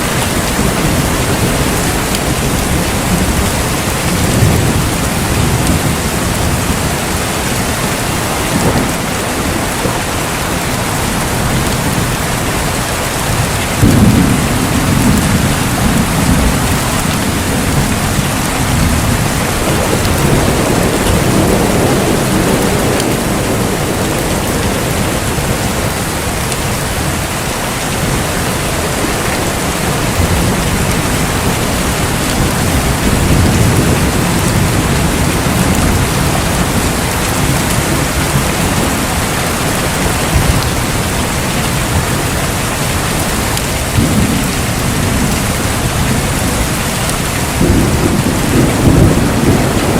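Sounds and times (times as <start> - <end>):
heavy rain: 0.0 - 49.9
thunder crack and rumble: 0.0 - 49.9.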